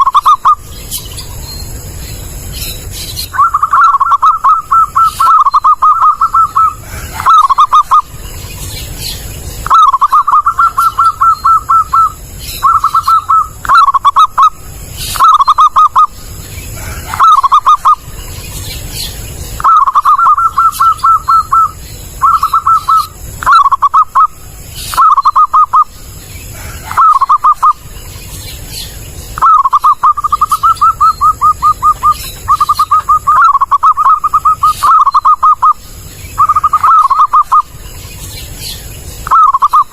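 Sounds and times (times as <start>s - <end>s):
dove cooing: 3.2s - 8.2s, 9.0s - 18.2s, 19.6s - 28.0s, 29.4s - 37.8s, 39.2s - 39.9s.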